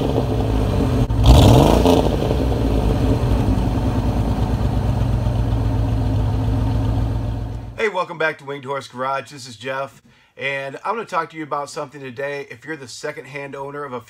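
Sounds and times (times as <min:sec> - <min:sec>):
car engine revving and idling: 0:00.0 - 0:07.8.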